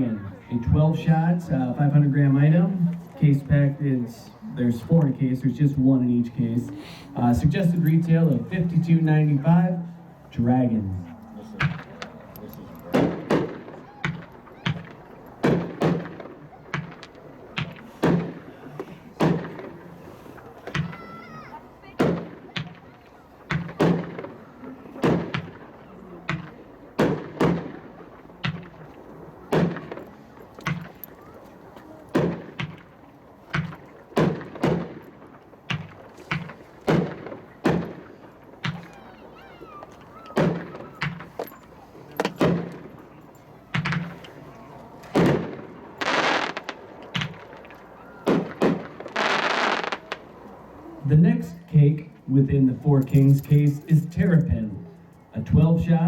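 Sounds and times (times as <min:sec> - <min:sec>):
fireworks booming: 0:12.9 - 0:21.1, 0:22.0 - 0:31.0, 0:32.1 - 0:41.4, 0:45.1 - 0:50.4
fireworks crackling burst: 0:45.2 - 0:47.7, 0:48.3 - 0:50.4.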